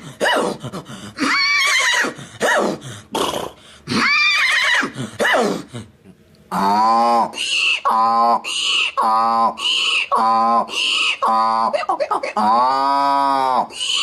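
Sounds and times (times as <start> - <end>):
man imitating horse whinnies: 1.2 - 2.2, 3.4 - 5.4.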